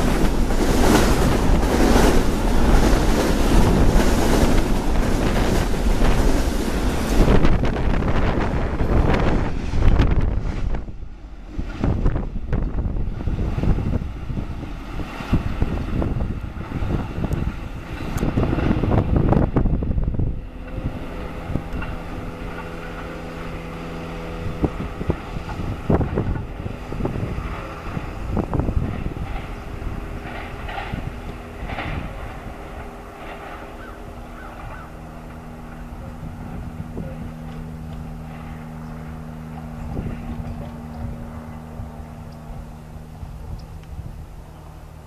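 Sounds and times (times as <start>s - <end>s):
train wheels clattering over rails: 0.0s - 9.3s
train rumble: 0.0s - 45.0s.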